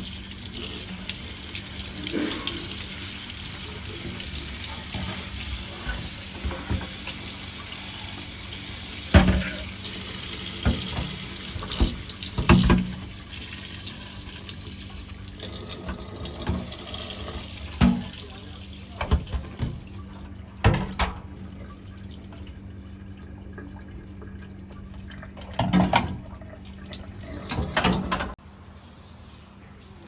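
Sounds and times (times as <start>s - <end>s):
tap water running into sink: 0.0s - 28.4s
objects knocking in sink: 9.1s - 9.7s, 10.6s - 13.1s, 17.8s - 18.2s, 19.0s - 19.9s, 20.6s - 21.2s, 25.5s - 26.2s.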